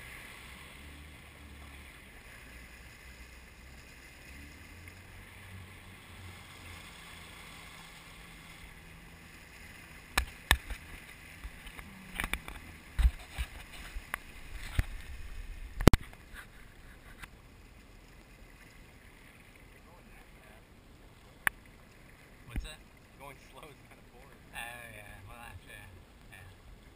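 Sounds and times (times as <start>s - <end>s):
jet ski engine running: 0.0s - 18.2s.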